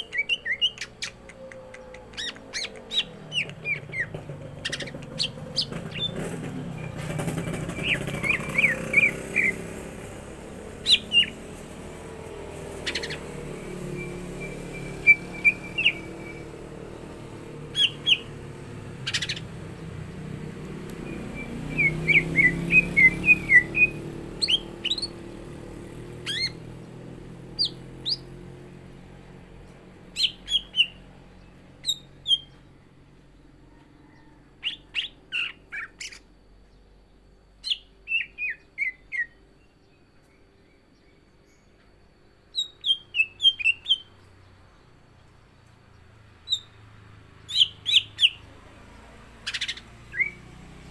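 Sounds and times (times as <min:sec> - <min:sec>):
bird chirping and whistling: 0:00.0 - 0:09.8, 0:10.8 - 0:11.6, 0:12.7 - 0:26.8, 0:27.5 - 0:28.4, 0:30.2 - 0:31.1, 0:31.8 - 0:32.6, 0:34.6 - 0:36.2, 0:37.6 - 0:39.5, 0:42.5 - 0:44.2, 0:46.4 - 0:46.8, 0:47.5 - 0:48.5, 0:49.4 - 0:50.6.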